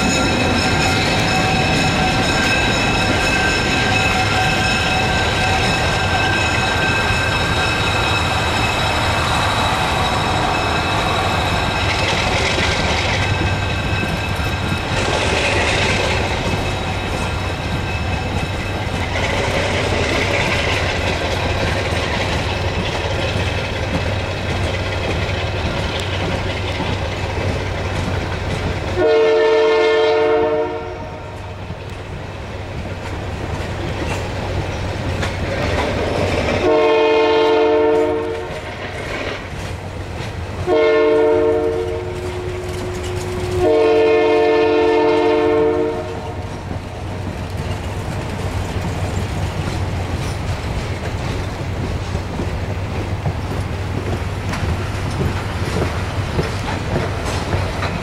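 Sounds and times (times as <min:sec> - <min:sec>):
train wheels rumbling and clattering: 0:00.0 - 0:58.0
locomotive horn blasts: 0:29.0 - 0:31.4, 0:36.6 - 0:38.6, 0:40.6 - 0:46.4.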